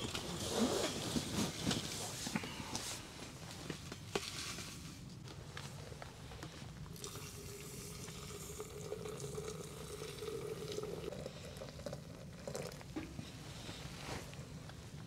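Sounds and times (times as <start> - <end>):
water boiling: 6.9 - 13.3.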